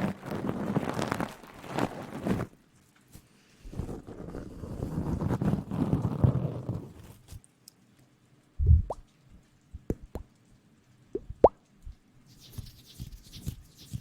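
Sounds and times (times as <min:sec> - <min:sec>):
wet plops rising in pitch: 0:08.6 - 0:09.0, 0:09.8 - 0:10.3, 0:11.2 - 0:11.6.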